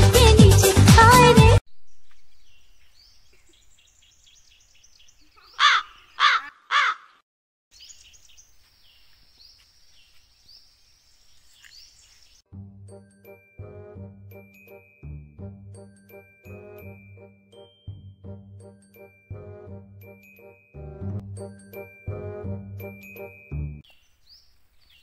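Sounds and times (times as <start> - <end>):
small birds chirping: 1.7 - 12.4, 23.8 - 25.0
crow cawing: 5.5 - 7.2.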